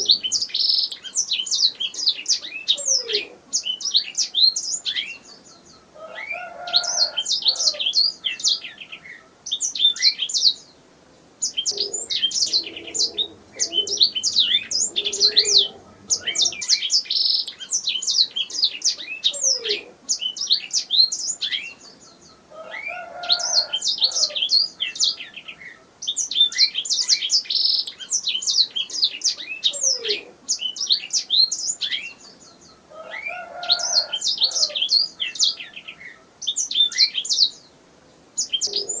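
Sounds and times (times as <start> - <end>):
canary singing chirps and trills: 0.0 - 10.8, 11.4 - 37.8, 38.4 - 39.0.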